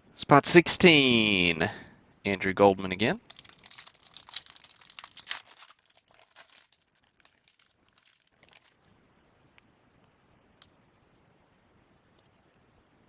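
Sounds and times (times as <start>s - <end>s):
wrapper tearing and crinkling: 3.0s - 8.7s.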